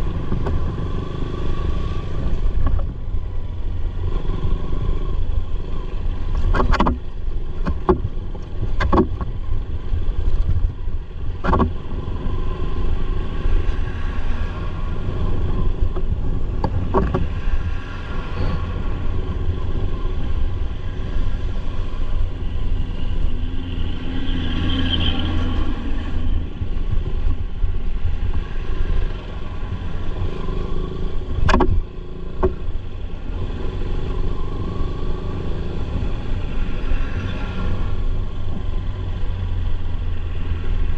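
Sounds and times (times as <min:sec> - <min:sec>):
motorcycle engine and wind rumble: 0:00.0 - 0:40.9.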